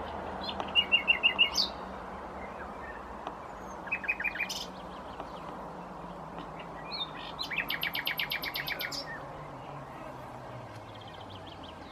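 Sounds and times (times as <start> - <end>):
nightingale singing: 0.0 - 11.9.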